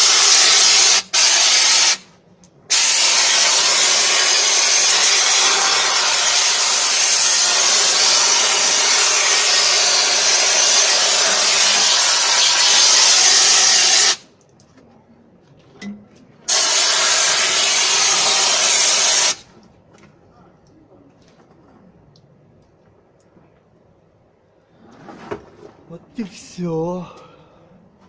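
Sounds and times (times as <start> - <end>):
pressure washer jet spraying: 0.0 - 2.0, 2.7 - 14.2, 16.5 - 19.4.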